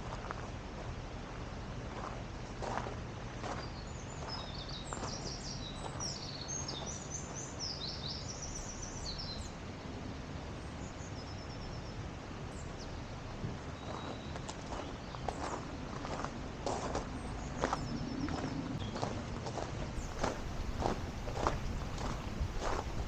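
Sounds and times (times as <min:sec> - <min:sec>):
outdoor background hiss: 0:05.4 - 0:18.1, 0:19.9 - 0:23.0
songbird chirping: 0:20.0 - 0:23.0.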